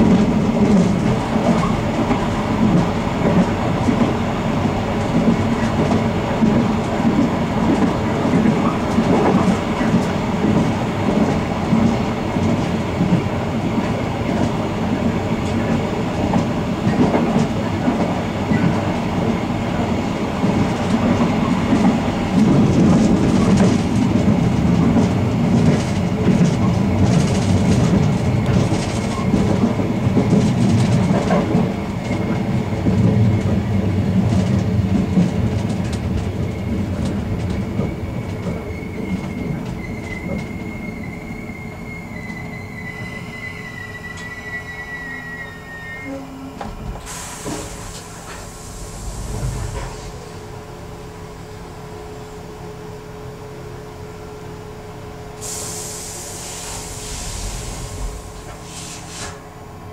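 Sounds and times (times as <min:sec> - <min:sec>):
train rumble from inside: 0:00.0 - 0:59.9
thin high squeal: 0:38.9 - 0:46.5.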